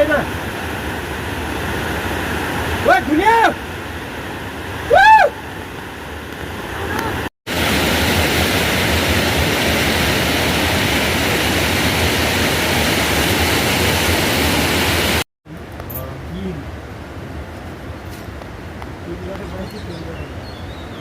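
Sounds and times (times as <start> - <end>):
heavy rain falling: 4.8 - 15.2.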